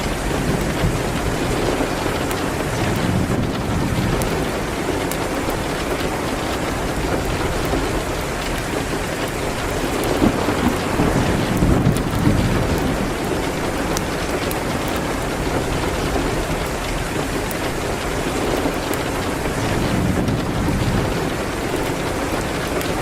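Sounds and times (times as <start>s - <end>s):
rain on a window: 0.0s - 23.0s.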